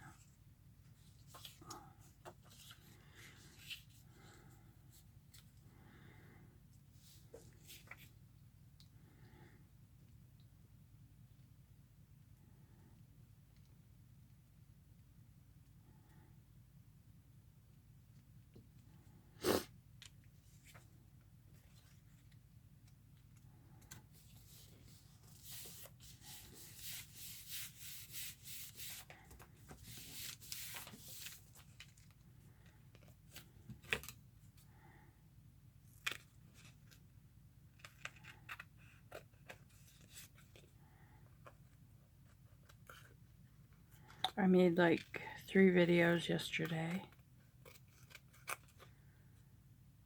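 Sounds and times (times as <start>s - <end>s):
low steady hum: 0.0s - 50.0s
paper rustle: 24.1s - 32.2s.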